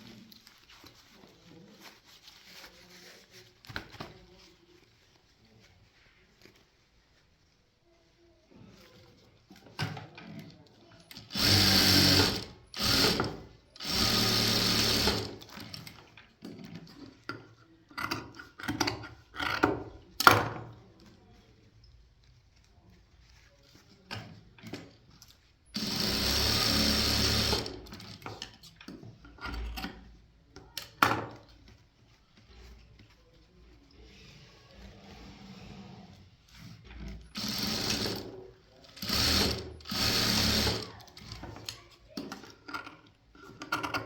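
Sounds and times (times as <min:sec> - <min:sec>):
clicks and knocks handling fabric: 0:00.0 - 0:11.1
sewing machine running: 0:11.3 - 0:15.4, 0:25.8 - 0:28.1, 0:37.3 - 0:38.3, 0:39.0 - 0:40.9.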